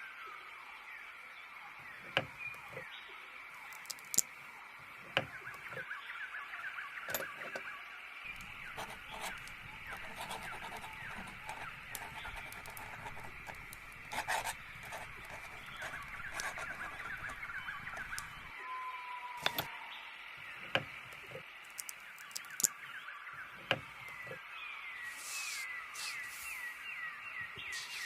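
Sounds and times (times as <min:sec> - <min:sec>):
small birds chirping and singing: 0:05.0 - 0:18.6, 0:19.4 - 0:28.0.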